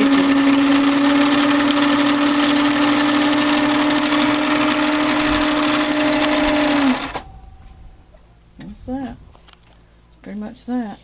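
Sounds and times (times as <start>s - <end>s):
sewing machine running: 0.0s - 7.2s.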